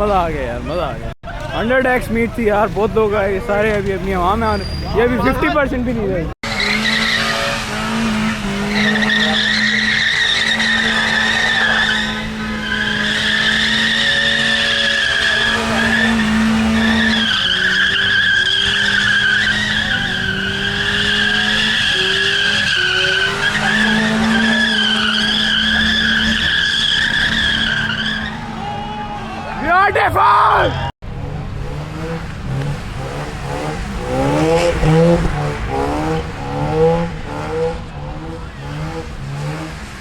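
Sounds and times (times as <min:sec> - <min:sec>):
tyres squealing: 0:03.5 - 0:05.7, 0:06.5 - 0:30.9
car engine at high revs: 0:05.5 - 0:28.6, 0:30.8 - 0:40.0.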